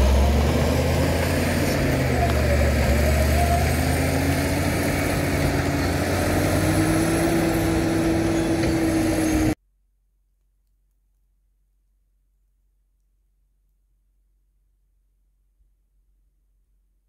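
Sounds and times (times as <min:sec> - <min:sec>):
bulldozer diesel engine running: 0:00.0 - 0:09.6.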